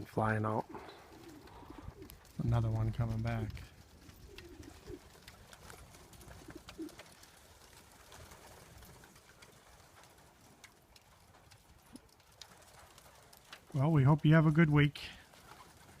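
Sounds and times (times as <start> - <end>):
pigeons cooing: 0.0 - 10.4
faint ticks: 8.8 - 13.8.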